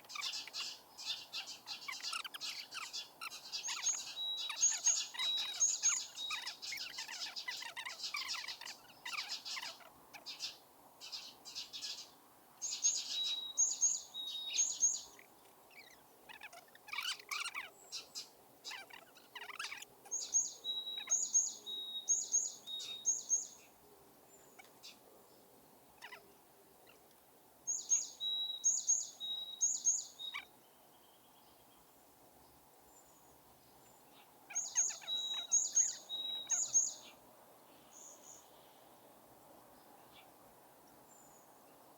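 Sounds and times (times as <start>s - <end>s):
birds chirping: 0.0s - 25.4s, 26.0s - 27.0s, 27.7s - 31.9s, 32.5s - 39.1s.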